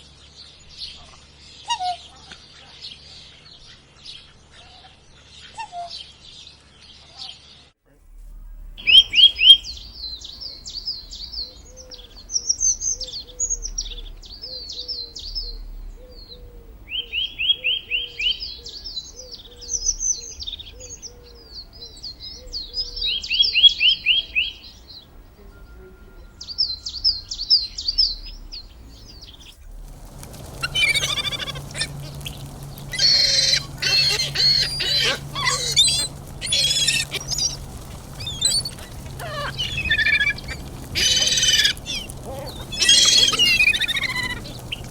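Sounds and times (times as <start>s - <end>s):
flock of birds squawking: 8.8s - 9.8s, 29.7s - 44.9s
low bird call: 8.8s - 12.1s, 29.4s - 44.9s
songbirds chirping and trilling: 8.8s - 25.4s, 26.4s - 44.9s.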